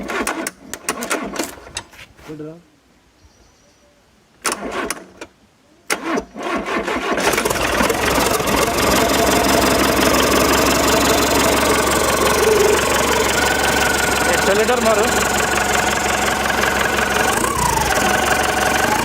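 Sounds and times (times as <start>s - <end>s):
diesel engine cranking: 0.0s - 1.9s, 4.4s - 5.3s, 5.9s - 19.0s
diesel engine idling: 7.3s - 19.0s.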